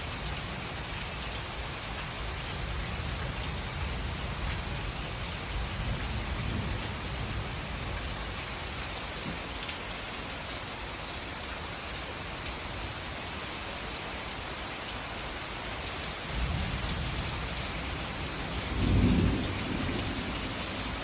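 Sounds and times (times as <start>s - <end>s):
steady rain hissing: 0.0s - 21.0s
low thunder rumble: 16.4s - 21.0s.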